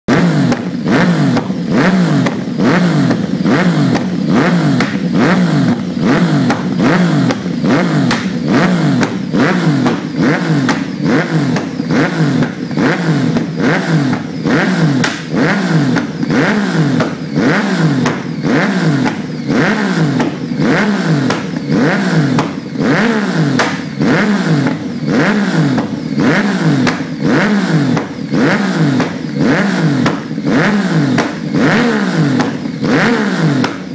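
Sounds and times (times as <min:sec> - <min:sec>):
motorcycle engine revving: 0:00.0 - 0:33.9
exhaust pops and cracks: 0:04.8 - 0:14.3, 0:15.0 - 0:15.4, 0:21.2 - 0:21.7, 0:23.5 - 0:24.0, 0:31.1 - 0:31.6.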